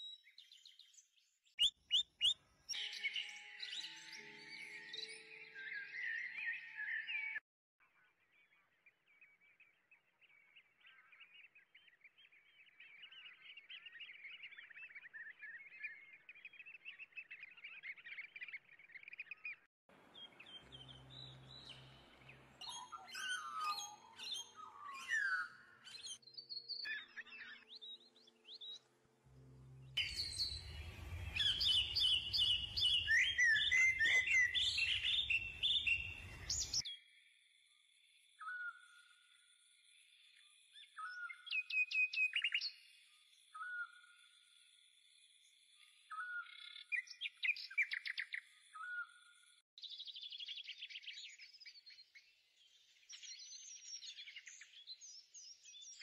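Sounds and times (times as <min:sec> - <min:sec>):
birds chirping and calling: 0:20.2 - 0:28.8, 0:30.0 - 0:36.9.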